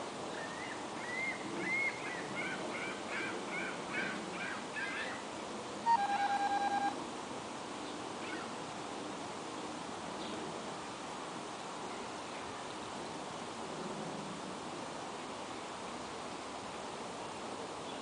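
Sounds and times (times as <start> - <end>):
bird singing whistled notes: 5.8 - 7.0
pulsing electronic beep: 5.9 - 7.0.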